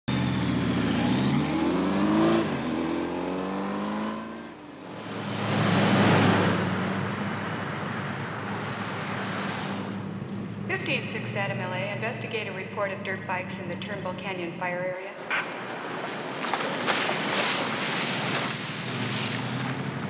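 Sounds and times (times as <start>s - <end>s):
motorcycle engines revving: 0.1s - 12.3s
car engine drone with road noise: 0.1s - 20.0s.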